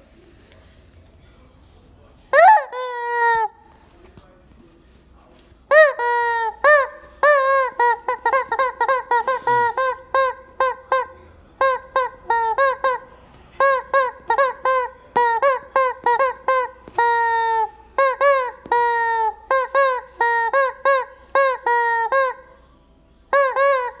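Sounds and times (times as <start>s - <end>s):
rubber chicken toy squawking: 2.3s - 3.6s, 5.7s - 22.6s, 23.3s - 24.0s.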